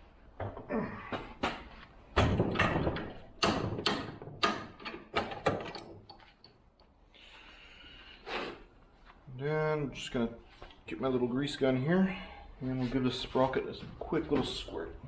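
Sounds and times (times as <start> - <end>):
metal tools clicking and scraping: 5.2 - 6.6.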